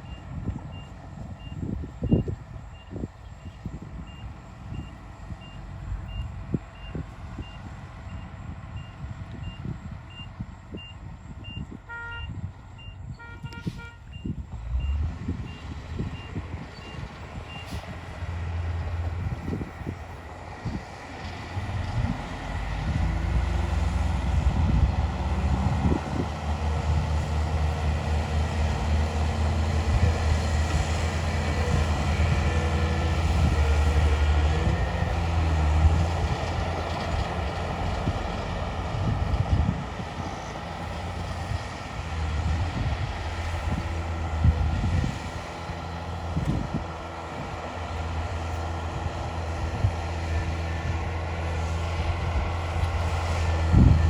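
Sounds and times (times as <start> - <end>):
reversing alarm beeping: 0.0 - 17.7
heavy diesel engine under load: 0.0 - 54.0
horn toots: 11.9 - 12.4, 13.2 - 14.2.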